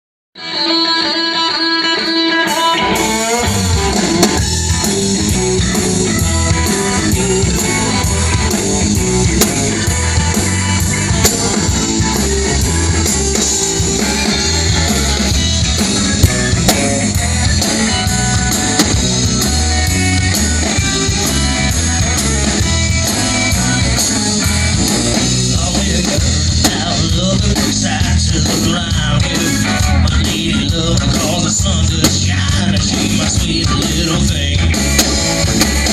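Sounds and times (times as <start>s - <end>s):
electric guitar: 0.4s - 35.9s
rock band playing: 0.4s - 35.9s.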